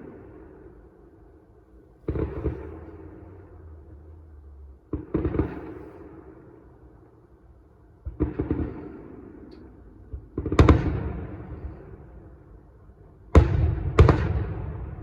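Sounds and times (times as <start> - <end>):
crackling rumble: 0.0 - 13.4
fireworks bangs: 2.0 - 3.7, 4.8 - 6.7, 8.0 - 9.5, 10.1 - 12.2, 13.3 - 15.0.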